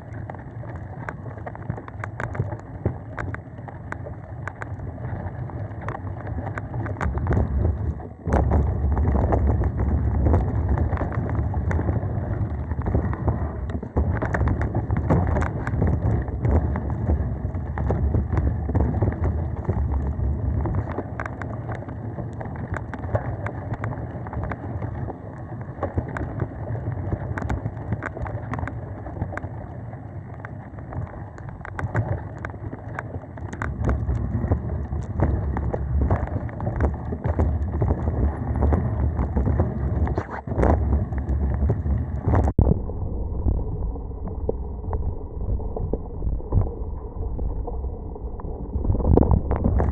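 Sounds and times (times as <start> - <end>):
wind rumbling on microphone: 0.0 - 49.9
bike tyre noise: 5.8 - 42.6.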